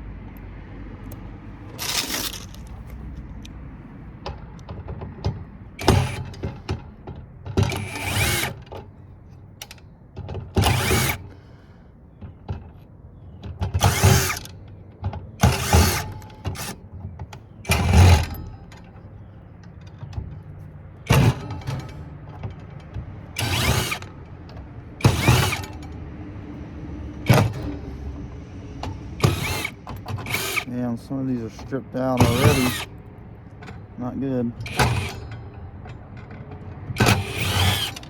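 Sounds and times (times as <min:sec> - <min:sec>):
electric drill running: 0:05.8 - 0:06.4, 0:07.8 - 0:08.6, 0:10.6 - 0:11.3, 0:13.8 - 0:14.4, 0:23.4 - 0:24.1, 0:25.0 - 0:25.8, 0:29.2 - 0:30.7, 0:32.2 - 0:32.9, 0:34.6 - 0:35.3, 0:37.0 - 0:38.0.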